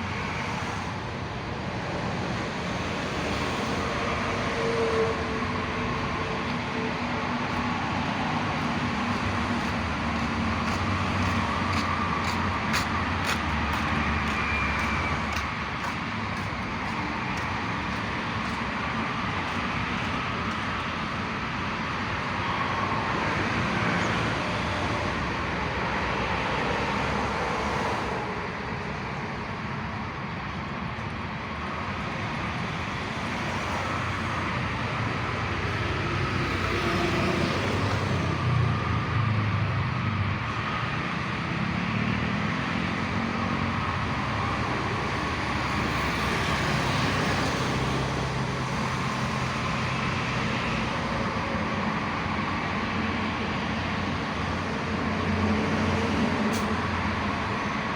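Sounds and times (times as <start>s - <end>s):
train rumbling past: 0.0s - 21.4s
train rumbling and rushing: 0.0s - 57.9s.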